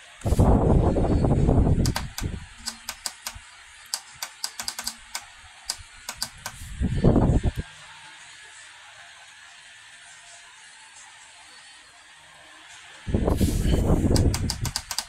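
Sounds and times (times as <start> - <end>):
short sharp clicks and taps: 1.8 - 6.6.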